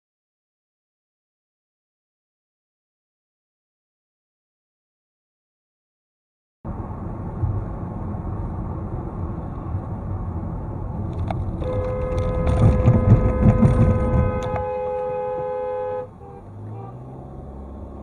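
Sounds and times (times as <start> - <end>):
car road and wind rumble: 6.7 - 18.0
car horn long blast: 11.6 - 17.2.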